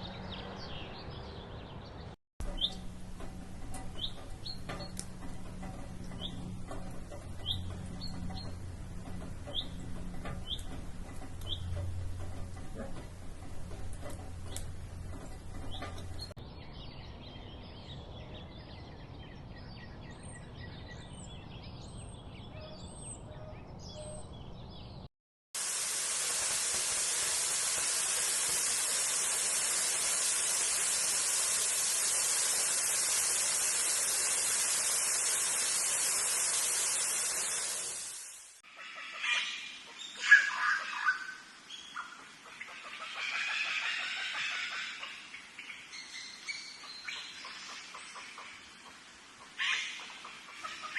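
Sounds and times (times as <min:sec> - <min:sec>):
small birds chirping: 0:00.0 - 0:25.0
background hum: 0:02.4 - 0:16.4
loud rushing hiss: 0:25.6 - 0:38.6.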